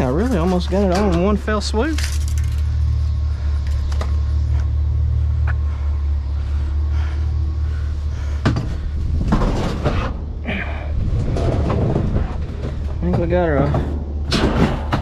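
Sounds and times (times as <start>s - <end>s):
vehicle engine idling: 0.0s - 11.5s
scrap rustling and clattering: 8.5s - 15.0s.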